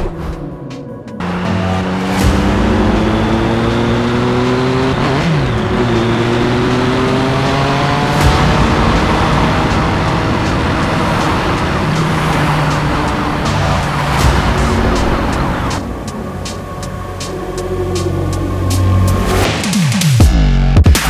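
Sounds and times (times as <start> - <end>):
motorcycle engine revving: 1.2 - 17.3.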